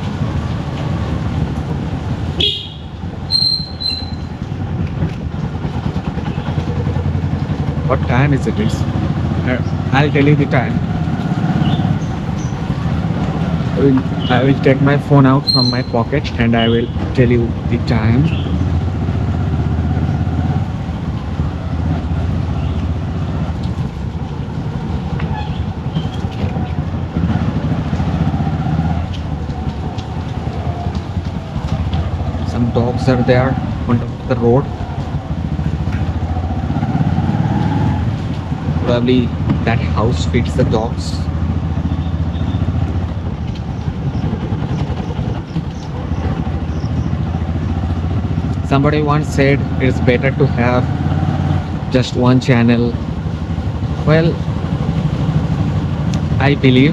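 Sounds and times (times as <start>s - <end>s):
motorcycle engine running: 0.0s - 56.9s
wind and road noise: 0.0s - 56.9s.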